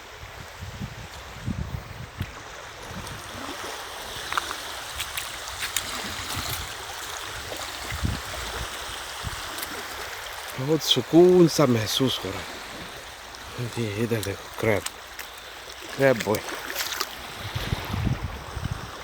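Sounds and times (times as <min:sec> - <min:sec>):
water lapping among rocks: 0:02.2 - 0:19.0.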